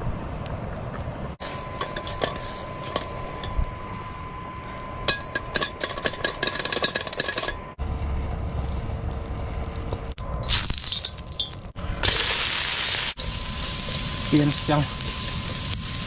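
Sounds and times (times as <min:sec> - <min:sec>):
metal cookware clinking: 0:01.8 - 0:03.6, 0:05.1 - 0:07.7.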